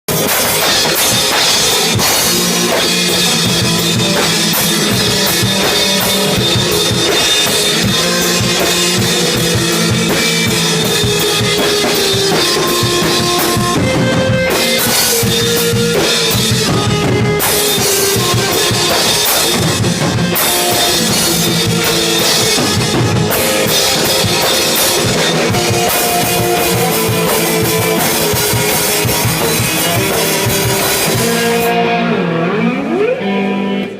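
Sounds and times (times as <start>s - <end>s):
drum kit: 0.0s - 33.9s
guitar: 0.0s - 33.9s
rock band playing: 0.0s - 33.9s.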